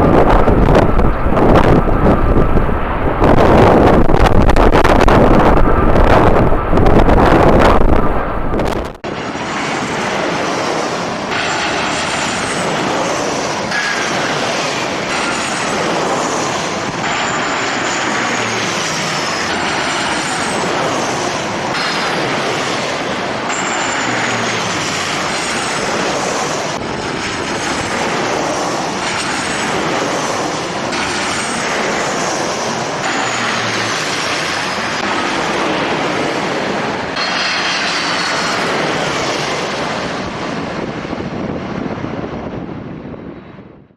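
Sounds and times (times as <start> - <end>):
high engine whines falling in pitch: 0.0 - 9.0
wind on microphone: 0.0 - 9.0, 23.9 - 43.9
jet engines running: 0.0 - 43.9.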